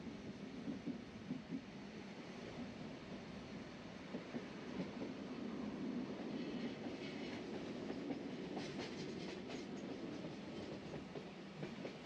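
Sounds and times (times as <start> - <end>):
train rumble on rails: 0.0 - 12.0.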